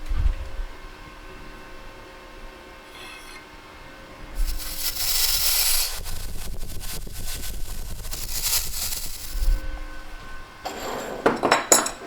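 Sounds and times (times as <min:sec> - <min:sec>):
faint hum: 0:00.0 - 0:10.7
metal scraping by hand: 0:02.9 - 0:03.4, 0:04.4 - 0:11.9.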